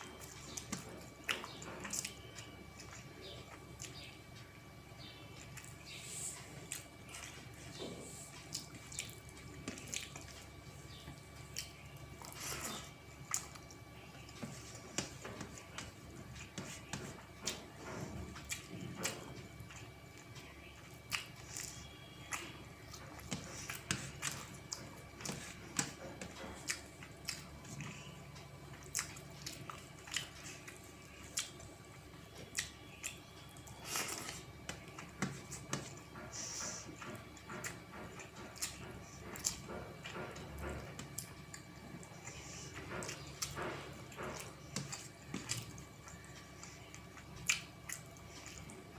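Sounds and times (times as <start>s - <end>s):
faint steady hum: 0.0s - 48.9s
wet chewing mouth sounds: 5.4s - 48.9s.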